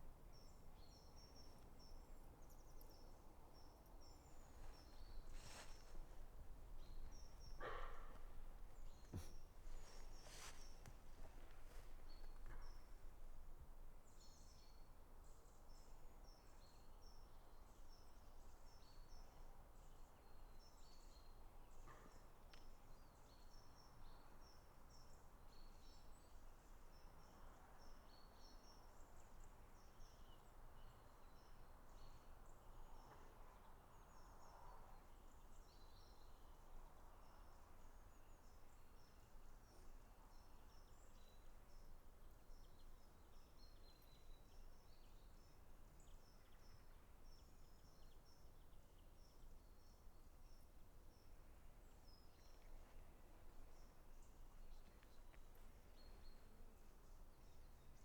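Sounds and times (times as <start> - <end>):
small birds chirping: 0.0 - 19.4.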